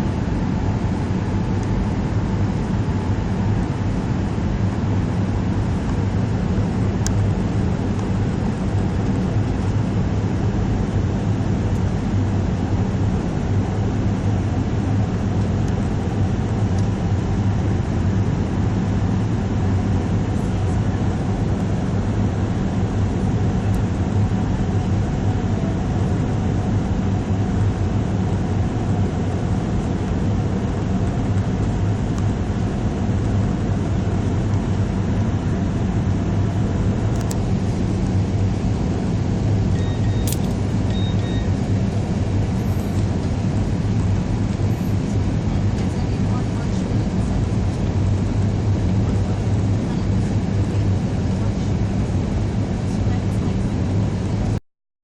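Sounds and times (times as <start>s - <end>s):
jet engine cabin drone: 0.0s - 54.6s
short beeps: 39.7s - 41.6s.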